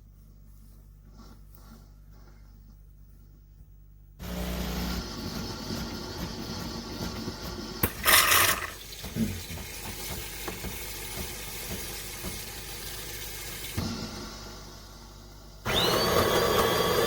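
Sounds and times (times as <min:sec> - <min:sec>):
liquid running with crackles: 0:07.8 - 0:13.8.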